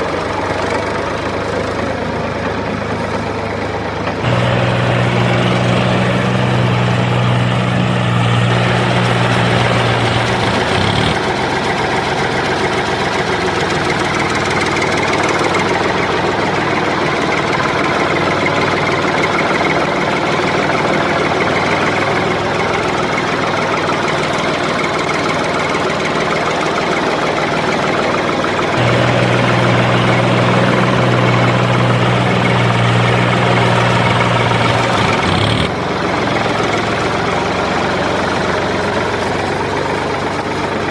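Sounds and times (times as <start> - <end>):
machine humming: 4.2 - 11.2, 28.8 - 35.7.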